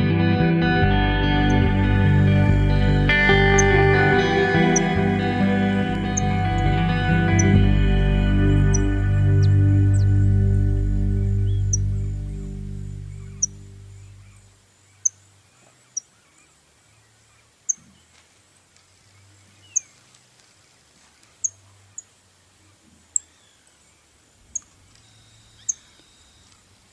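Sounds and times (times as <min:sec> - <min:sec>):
background music: 0:00.0 - 0:14.0
bird chirping: 0:01.2 - 0:18.2, 0:19.1 - 0:20.0, 0:21.2 - 0:26.9.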